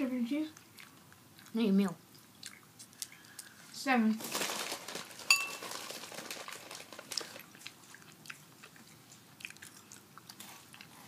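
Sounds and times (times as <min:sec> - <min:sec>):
tortilla chips crunching: 0:04.2 - 0:08.8.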